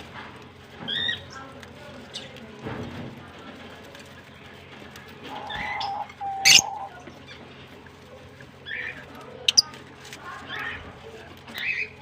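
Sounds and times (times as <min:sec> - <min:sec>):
lovebirds chirping: 0:05.3 - 0:07.6, 0:08.6 - 0:12.0
shrill bird call: 0:05.4 - 0:07.0.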